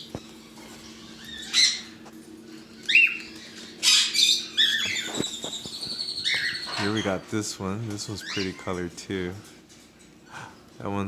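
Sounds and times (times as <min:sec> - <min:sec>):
parrots chirping and squawking: 0:00.0 - 0:07.4, 0:08.0 - 0:09.0.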